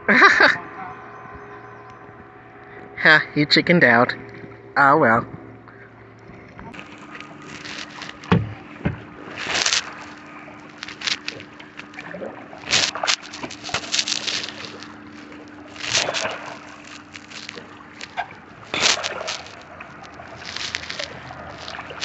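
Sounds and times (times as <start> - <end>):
paddle splashing in water: 6.7 - 22.0.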